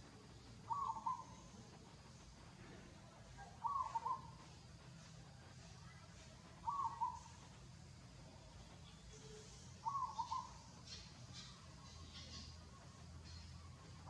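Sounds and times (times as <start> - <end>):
faint low hum: 0.0 - 14.0
bird two-part call: 0.7 - 1.5, 3.6 - 4.4, 6.6 - 7.4, 9.2 - 12.6.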